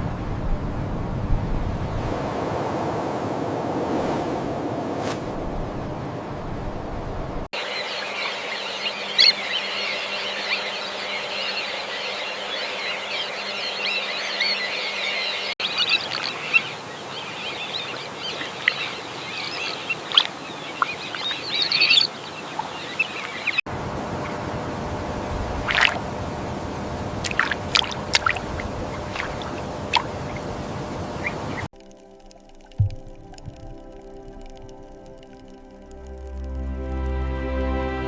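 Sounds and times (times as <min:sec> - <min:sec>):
birds chirping and calling: 0:07.6 - 0:31.7
steady background hiss: 0:07.6 - 0:31.7.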